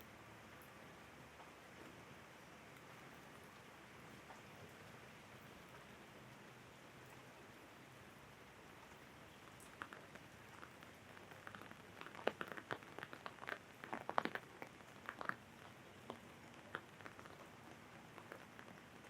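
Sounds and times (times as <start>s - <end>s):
soft hiss of rain: 0.0s - 19.0s
raindrops tapping on umbrella: 8.8s - 19.0s.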